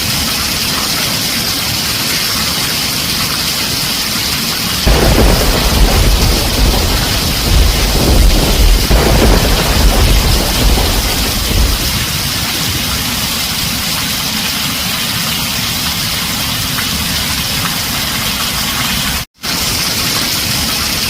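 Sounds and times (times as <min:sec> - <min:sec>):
heavy rain on a tin roof: 0:00.0 - 0:21.0
low thunder rumble: 0:04.9 - 0:13.9.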